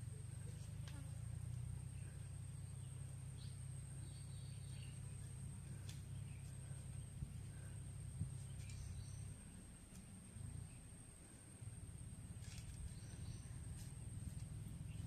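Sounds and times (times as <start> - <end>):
faint bird chirps: 1.7 - 9.6, 12.5 - 15.0.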